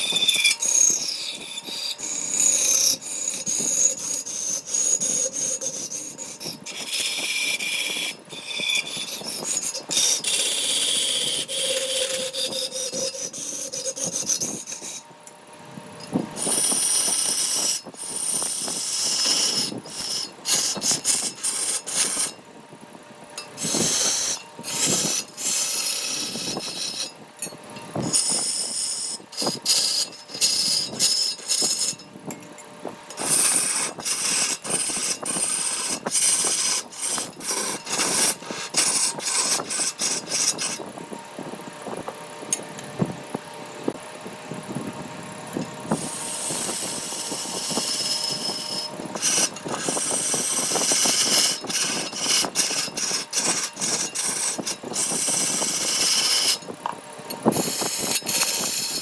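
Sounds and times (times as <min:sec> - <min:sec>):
abrasive scraping on wood: 0:23.4 - 0:27.2, 0:28.0 - 0:32.1, 0:33.2 - 0:40.8, 0:45.9 - 0:56.7.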